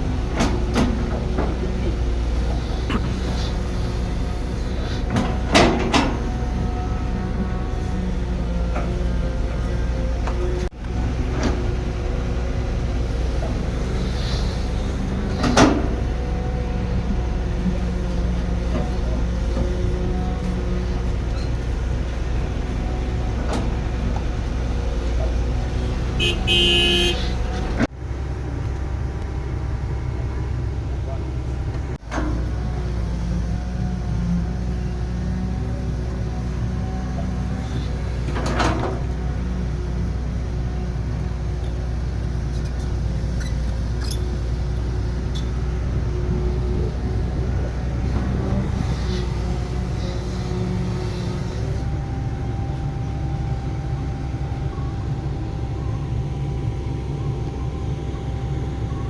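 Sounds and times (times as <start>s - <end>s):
diesel engine running: 0.0s - 59.0s
metal clanks and knocks: 0.1s - 6.9s
vehicle horn tooting: 26.1s - 27.7s.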